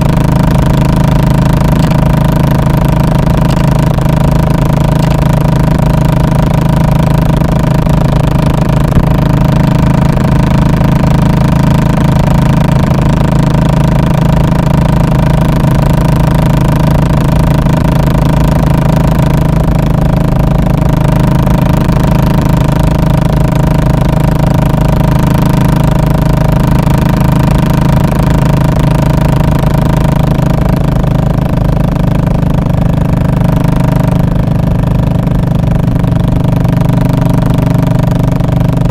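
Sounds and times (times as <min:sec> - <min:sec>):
motorcycle engine thumping: 0:00.0 - 0:13.9.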